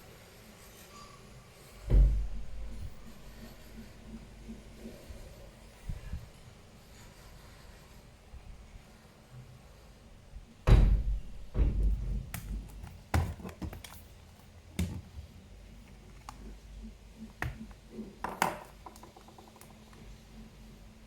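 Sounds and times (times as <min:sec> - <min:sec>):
hard objects clicking and knocking: 0:11.4 - 0:15.2, 0:17.2 - 0:20.2.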